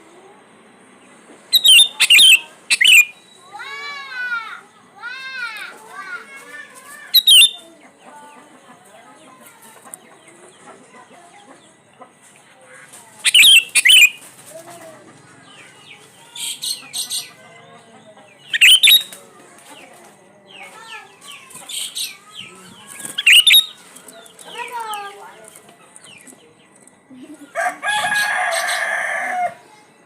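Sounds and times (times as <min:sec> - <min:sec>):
harsh scratchy bird calls: 0:01.5 - 0:03.3, 0:07.0 - 0:07.6, 0:13.2 - 0:14.6, 0:18.4 - 0:19.2, 0:20.8 - 0:25.0
birds chirping and whistling: 0:01.5 - 0:03.4, 0:07.2 - 0:07.6, 0:13.3 - 0:14.3, 0:18.4 - 0:19.2, 0:21.8 - 0:23.8.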